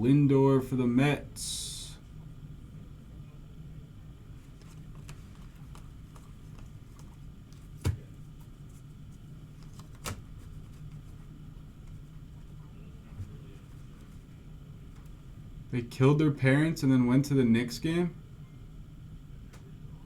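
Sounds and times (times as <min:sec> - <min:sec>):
steady low hum: 0:00.0 - 0:20.0
trading cards handled: 0:04.4 - 0:08.1, 0:09.5 - 0:11.2.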